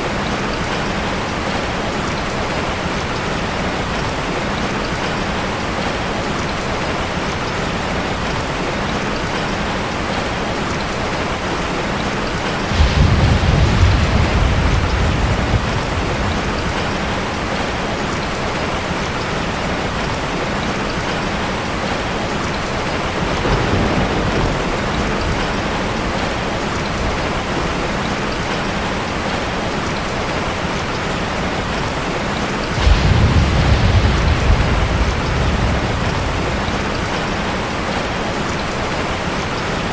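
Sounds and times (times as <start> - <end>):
heavy rain hissing: 0.0 - 39.9
thunder rumbles: 12.1 - 20.2, 21.7 - 29.6, 31.8 - 39.9.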